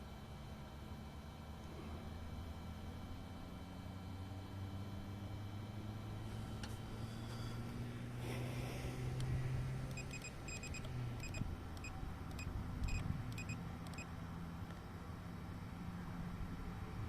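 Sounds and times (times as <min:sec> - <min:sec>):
low steady hum: 0:00.0 - 0:17.0
short electronic beeps: 0:09.9 - 0:14.1.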